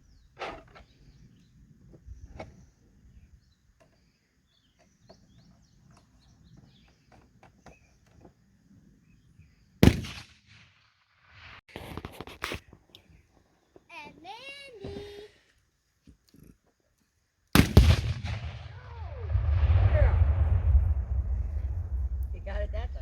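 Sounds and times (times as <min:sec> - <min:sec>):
faint bird chirps: 0:00.0 - 0:09.8
loud gunshot with echo: 0:09.8 - 0:10.7, 0:17.6 - 0:22.3.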